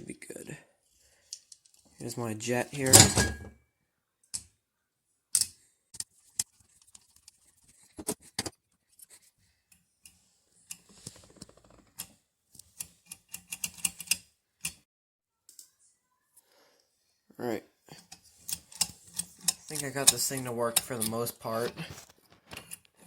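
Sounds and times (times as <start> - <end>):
small metal parts clicking: 12.8 - 14.8, 18.0 - 21.4.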